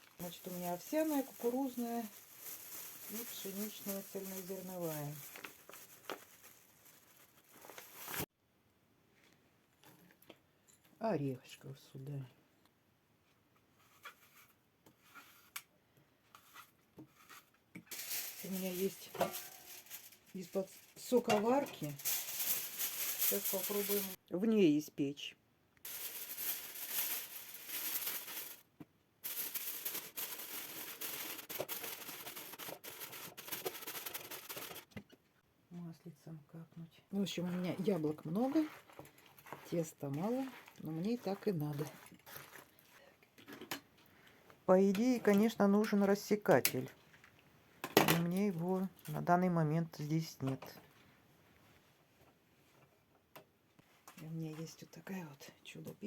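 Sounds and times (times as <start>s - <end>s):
rustling and scraping of baking things: 0.0s - 8.3s, 13.2s - 24.2s, 25.9s - 35.3s, 37.2s - 53.1s.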